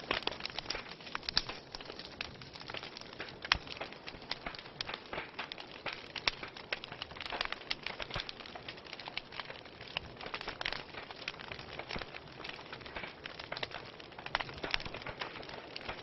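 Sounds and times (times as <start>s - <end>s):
logs crackling and popping: 0.0s - 16.0s.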